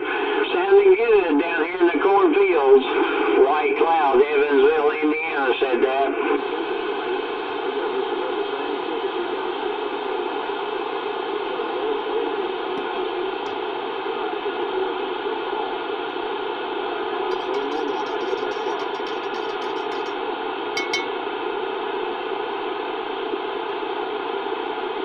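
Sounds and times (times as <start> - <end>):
radio static hiss: 0.0 - 20.2
faint garbled radio signals: 17.3 - 20.2.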